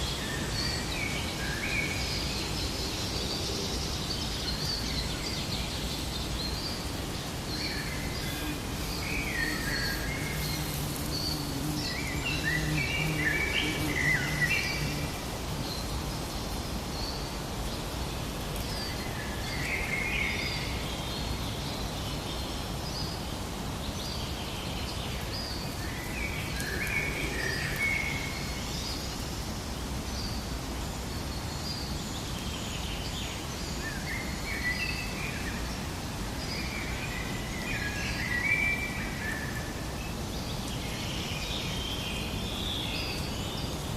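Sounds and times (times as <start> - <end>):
birds chirping and warbling: 0.0 - 29.3
steady background hiss: 0.0 - 43.9.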